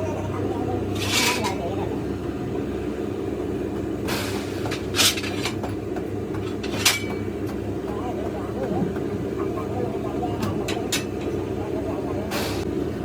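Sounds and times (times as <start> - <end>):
low mechanical hum: 0.0 - 13.0
sharp metal clanks: 4.0 - 5.8, 6.4 - 7.6.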